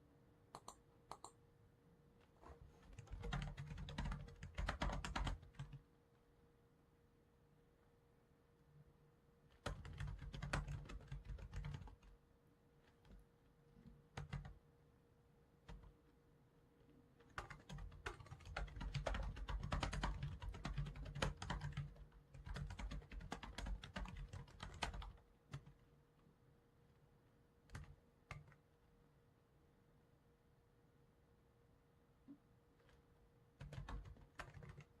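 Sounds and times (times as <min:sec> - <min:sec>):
typing on computer keyboard: 0:00.6 - 0:01.4, 0:02.9 - 0:05.8, 0:09.5 - 0:12.1, 0:14.1 - 0:14.6, 0:15.7 - 0:15.9, 0:17.2 - 0:25.8, 0:27.7 - 0:28.6, 0:33.6 - 0:35.0.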